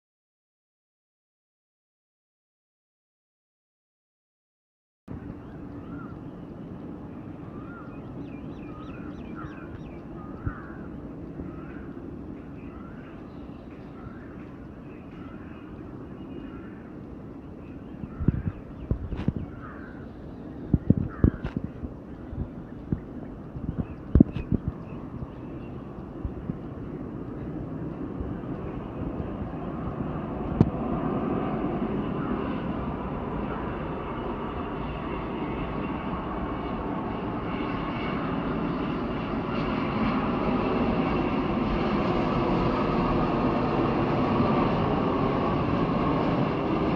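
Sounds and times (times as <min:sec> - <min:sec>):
faint birds calling: 0:05.1 - 0:40.0
distant jet engines rumbling: 0:05.1 - 0:46.9.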